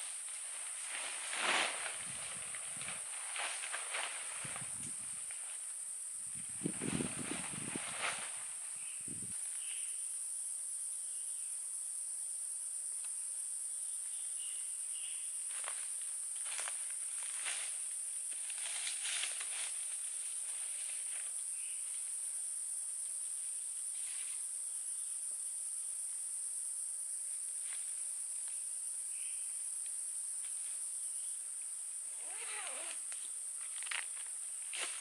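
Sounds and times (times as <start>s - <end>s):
soft rustles of handling: 0.0s - 5.8s, 15.5s - 22.2s
insects droning: 0.0s - 35.0s.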